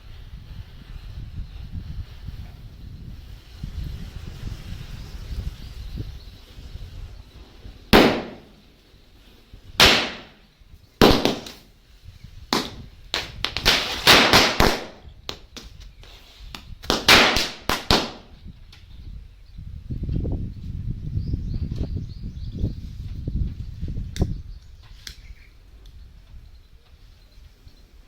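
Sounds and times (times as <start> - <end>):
firecrackers bursting: 0.5 - 18.4.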